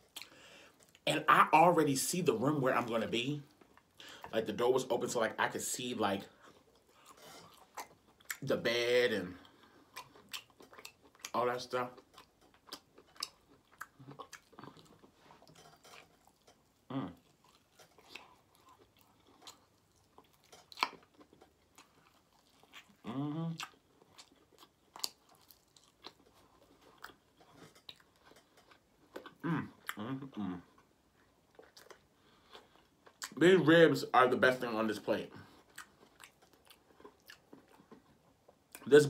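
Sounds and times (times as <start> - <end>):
person chewing meat: 6.4 - 8.5, 9.3 - 33.4, 35.4 - 38.9
short vocal sounds: 29.4 - 30.7.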